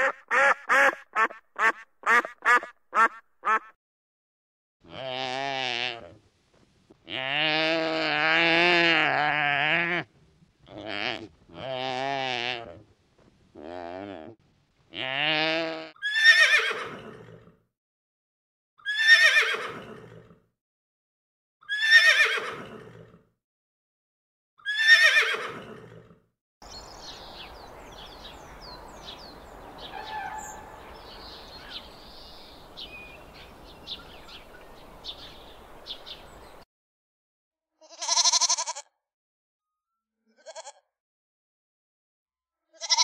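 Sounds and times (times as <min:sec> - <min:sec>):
horse whinnying: 0:15.3 - 0:17.4, 0:18.9 - 0:20.0, 0:21.7 - 0:22.8, 0:24.7 - 0:25.9.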